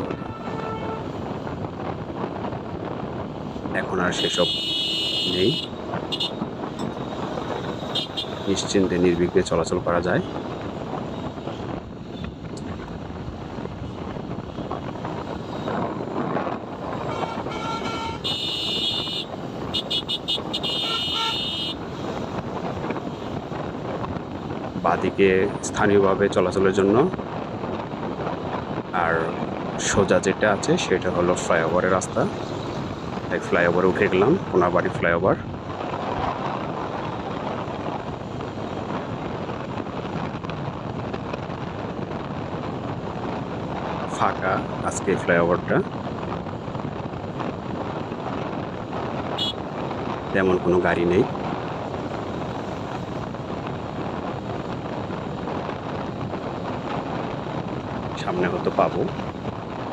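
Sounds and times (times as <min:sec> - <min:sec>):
vehicle horn honking: 0:00.0 - 0:01.2, 0:04.2 - 0:06.4, 0:07.8 - 0:08.5, 0:17.0 - 0:21.8, 0:49.4 - 0:49.6
wind and road noise: 0:00.0 - 0:59.9.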